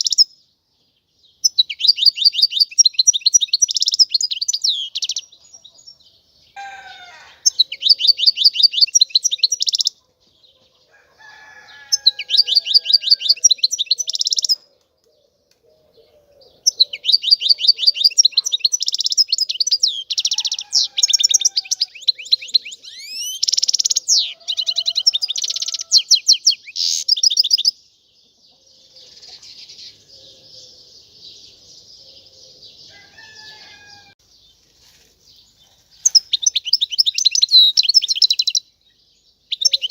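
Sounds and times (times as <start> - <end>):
goldfinch singing: 1.4 - 5.9, 7.4 - 10.0, 11.8 - 14.7, 16.5 - 27.8, 36.0 - 38.7, 39.5 - 39.9.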